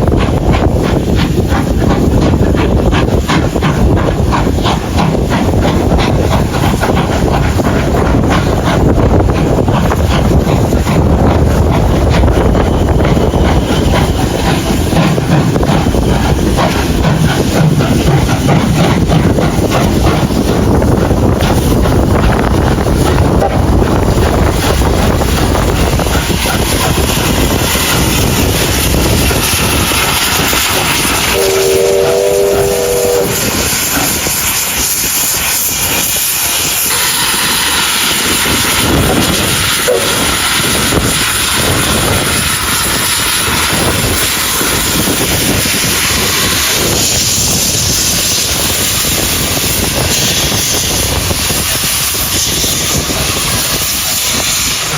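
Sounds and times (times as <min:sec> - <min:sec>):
train running: 0:00.0 - 0:54.9
train whistle: 0:31.3 - 0:33.6, 0:36.9 - 0:38.8, 0:39.6 - 0:41.6.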